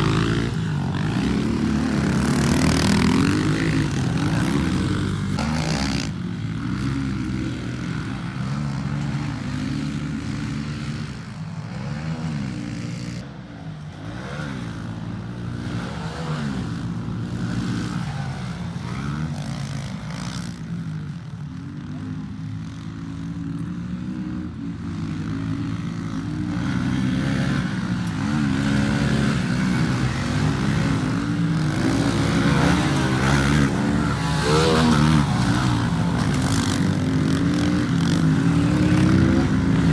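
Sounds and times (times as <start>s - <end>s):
pit bike engine revving: 0.0s - 11.1s, 25.2s - 39.9s.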